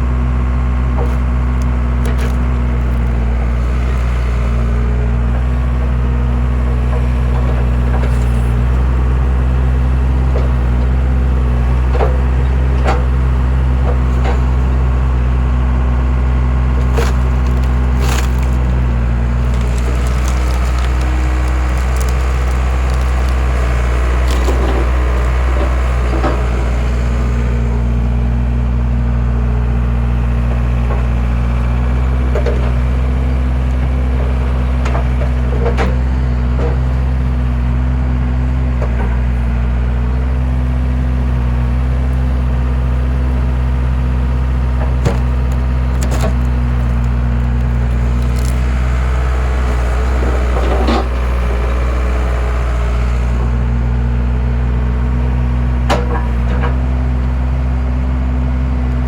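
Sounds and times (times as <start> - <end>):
skid steer engine running: 0.0 - 59.0
wood cracking and splintering: 0.7 - 15.1, 16.2 - 27.7, 40.8 - 53.3.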